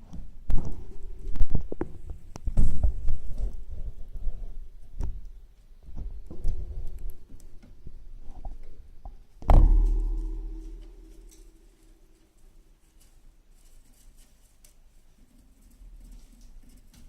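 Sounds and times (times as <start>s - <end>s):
hamsters scrabbling and nibbling: 0.5s - 17.0s
loud ringing knock: 9.4s - 11.8s.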